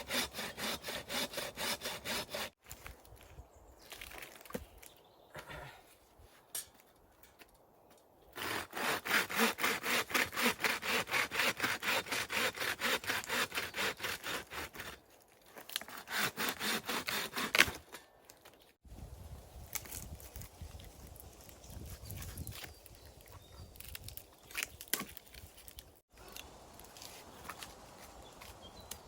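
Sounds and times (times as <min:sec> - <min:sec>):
hand saw cutting wood: 0:00.0 - 0:02.6, 0:08.4 - 0:15.0, 0:15.7 - 0:18.0.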